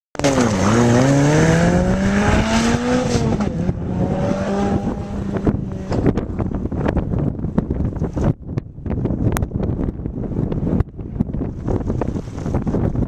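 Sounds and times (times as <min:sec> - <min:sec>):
sports car engine accelerating: 0:00.2 - 0:06.5
wind buffeting microphone: 0:00.2 - 0:13.0.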